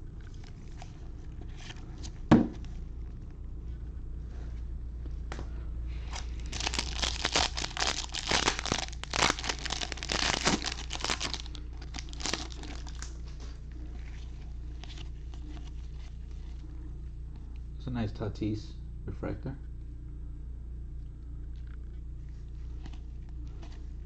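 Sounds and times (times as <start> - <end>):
foil wrapper crinkling and tearing: 6.0 - 13.1.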